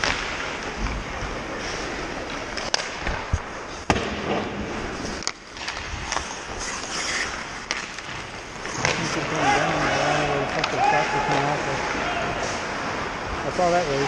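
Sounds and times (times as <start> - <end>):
steady rink hiss: 0.1 - 14.0
hockey sticks knocking puck: 2.2 - 12.6.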